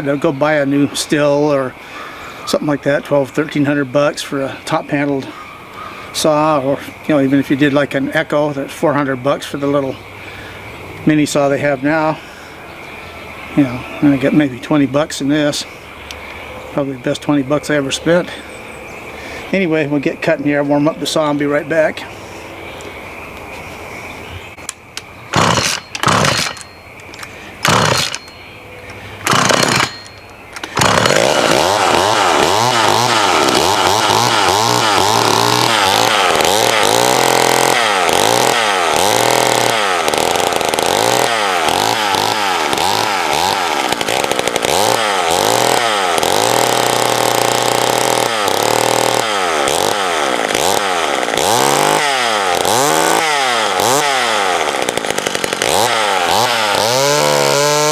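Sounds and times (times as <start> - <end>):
chainsaw revving: 0.1 - 12.1, 25.3 - 57.9
chainsaw pull-starting: 25.3 - 57.9.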